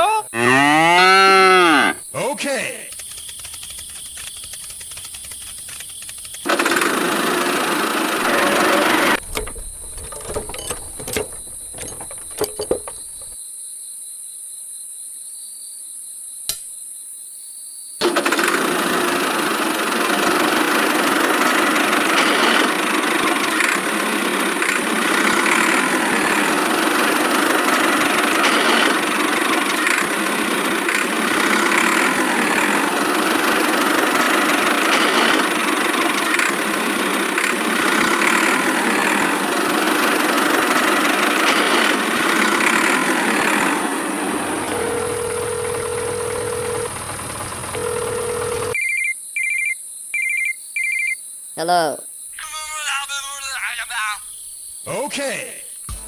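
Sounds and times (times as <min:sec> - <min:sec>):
motor running: 0:02.9 - 0:13.4, 0:18.7 - 0:48.8
clicks: 0:09.1 - 0:13.4, 0:16.5 - 0:16.8.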